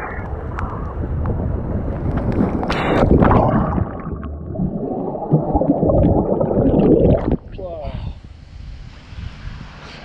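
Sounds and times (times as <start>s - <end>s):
water splashing and gurgling: 1.4s - 7.6s.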